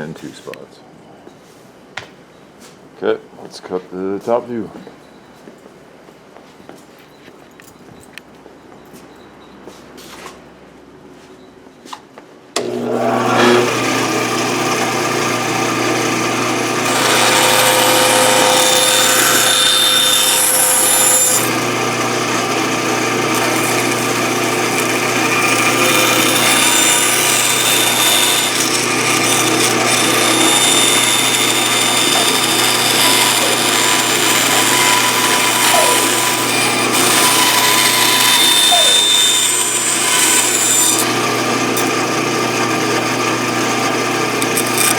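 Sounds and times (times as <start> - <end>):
bandsaw cutting wood: 12.6 - 44.9.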